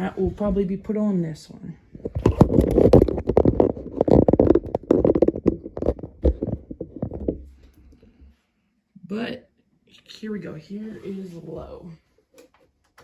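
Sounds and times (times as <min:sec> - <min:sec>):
handling scraping and knocking: 0:02.0 - 0:07.8.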